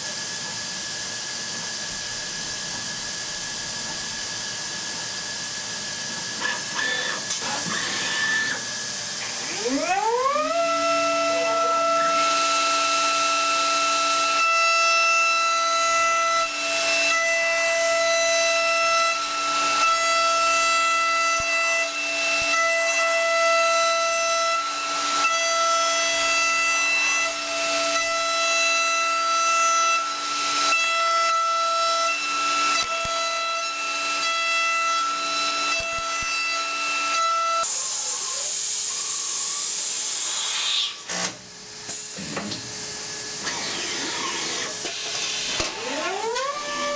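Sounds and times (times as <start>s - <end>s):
hiss: 37.6s - 41.1s
milling spindle whining: 43.4s - 46.9s.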